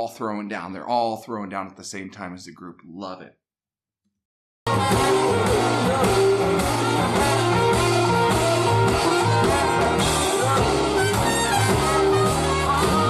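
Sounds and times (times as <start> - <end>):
drums: 4.7 - 13.0
electric guitar soloing: 4.7 - 13.0
live band playing: 4.7 - 13.0.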